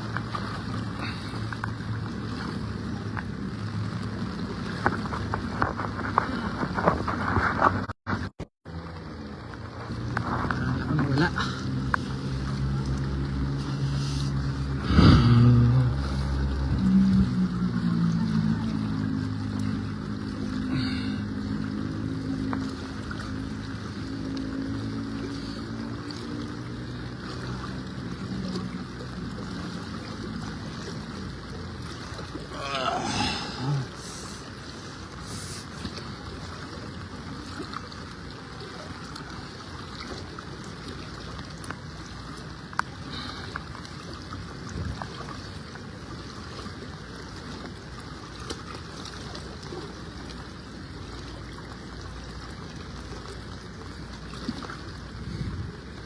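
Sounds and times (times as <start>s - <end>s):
floodwater rushing: 0.0s - 7.9s, 8.7s - 56.0s
low hum: 8.7s - 30.6s
heavy rain: 32.5s - 34.6s.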